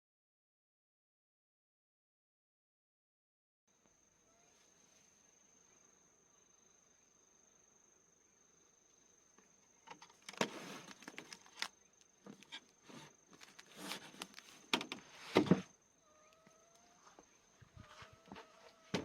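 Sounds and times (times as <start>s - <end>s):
high insect trill: 3.8s - 19.0s
objects rustling and knocking: 9.9s - 15.8s.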